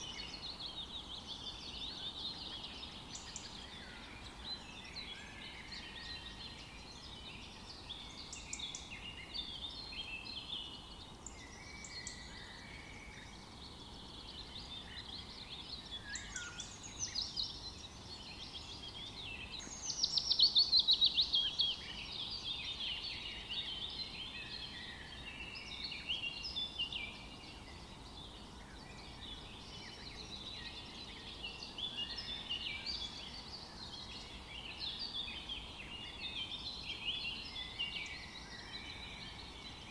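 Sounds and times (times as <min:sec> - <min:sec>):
birds chirping and singing: 0:00.0 - 0:39.9
faint steady hiss: 0:00.0 - 0:39.9.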